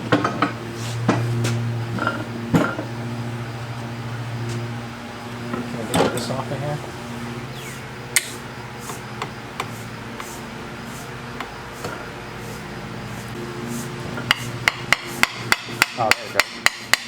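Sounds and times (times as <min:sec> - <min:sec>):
hand tools tapping engine parts: 0:08.2 - 0:10.4, 0:11.4 - 0:13.4, 0:14.1 - 0:17.0.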